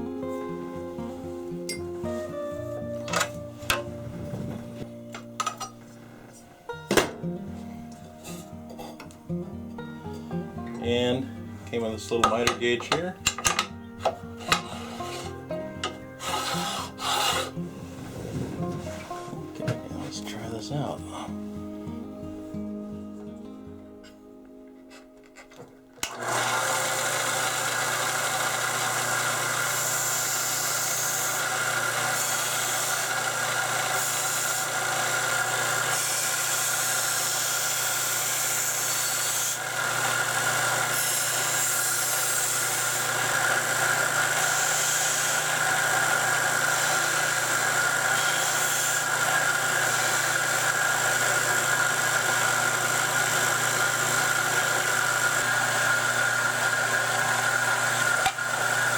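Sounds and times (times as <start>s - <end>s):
sander motor humming: 12.9s - 19.7s, 26.0s - 58.9s.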